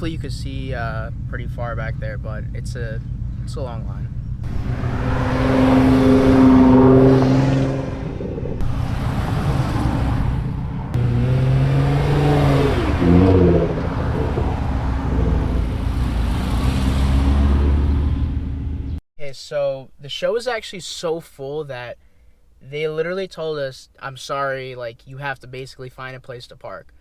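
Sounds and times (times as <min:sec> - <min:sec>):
car engines running: 0:00.0 - 0:19.0
engine revving: 0:04.4 - 0:19.0.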